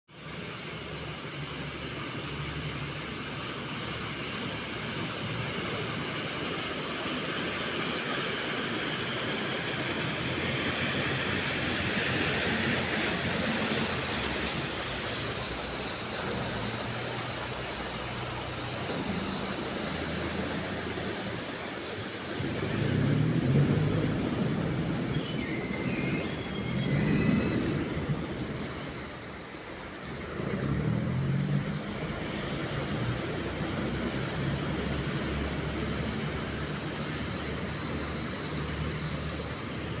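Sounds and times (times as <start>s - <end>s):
boat engine running: 9.6s - 39.8s.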